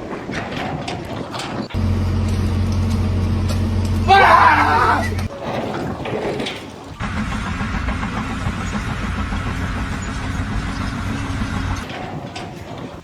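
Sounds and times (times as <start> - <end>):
engine running steadily: 1.7 - 5.3, 7.0 - 11.9.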